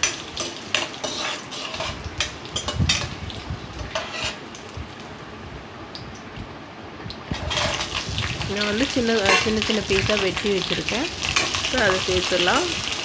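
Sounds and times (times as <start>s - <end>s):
metal spoon scraping a pan: 0.0s - 3.2s, 3.8s - 4.4s, 7.4s - 13.0s
chillies sizzling in oil: 0.0s - 5.3s, 7.2s - 13.0s.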